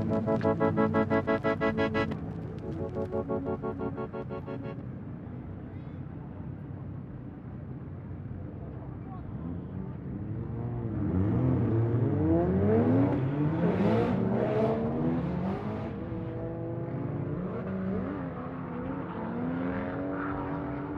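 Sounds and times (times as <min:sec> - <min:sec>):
car engines revving hard: 0:00.0 - 0:04.8, 0:10.1 - 0:20.9.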